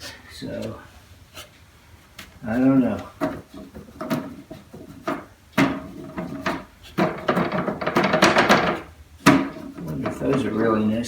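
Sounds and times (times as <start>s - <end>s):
wooden drawers sliding and scraping: 2.6s - 10.8s
sharp wooden knocks: 3.0s - 10.8s.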